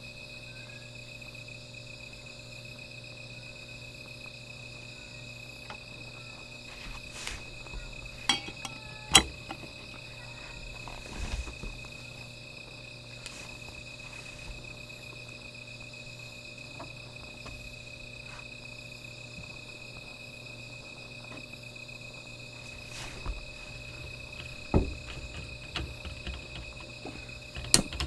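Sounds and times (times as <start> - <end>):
crickets trilling: 0.0 - 28.0.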